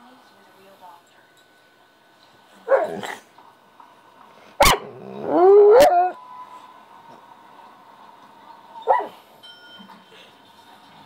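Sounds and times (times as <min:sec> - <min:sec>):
dog yelping: 0:04.6 - 0:06.2, 0:08.8 - 0:09.2
dog howling: 0:04.7 - 0:06.2.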